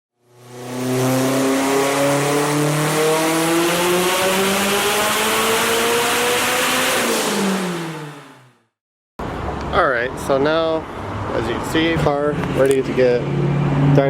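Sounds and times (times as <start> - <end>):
car engine full-throttle pull: 0.3 - 8.6.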